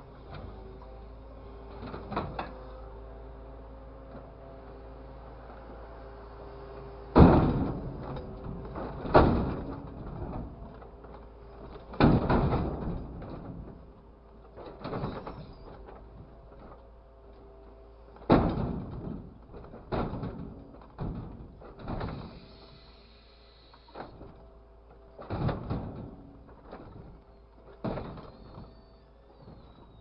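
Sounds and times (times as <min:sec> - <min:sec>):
knocks and thuds: 0:07.2 - 0:10.8, 0:11.6 - 0:13.9, 0:18.2 - 0:22.3, 0:25.2 - 0:27.2, 0:27.8 - 0:28.7.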